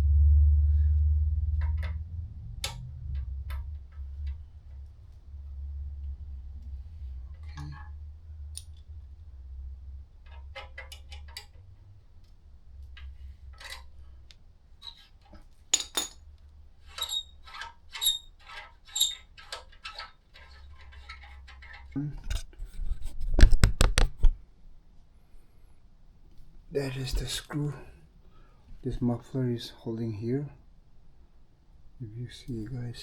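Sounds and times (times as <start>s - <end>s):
metal tools clinking: 15.7s - 16.3s.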